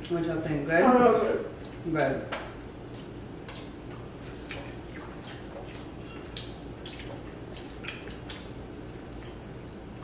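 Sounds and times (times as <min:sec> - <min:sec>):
steady low hum: 0:00.0 - 0:10.0
wet chewing clicks: 0:02.9 - 0:09.9.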